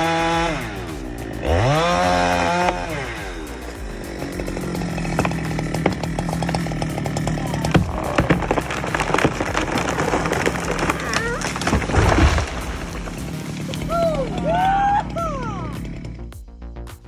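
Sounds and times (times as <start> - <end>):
chainsaw engine revving: 0.0 - 16.3
wood crackling and snapping: 3.6 - 15.2.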